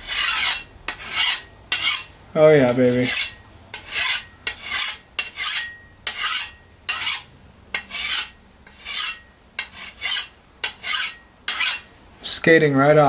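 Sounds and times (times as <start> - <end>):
file rasping on steel blade: 0.0 - 2.1, 2.7 - 12.0.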